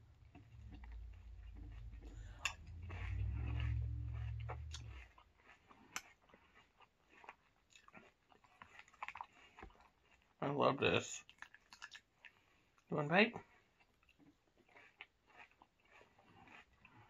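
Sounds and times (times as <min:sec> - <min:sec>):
low rumble: 0:00.0 - 0:05.4
chewing crunchy cereal: 0:00.0 - 0:17.0.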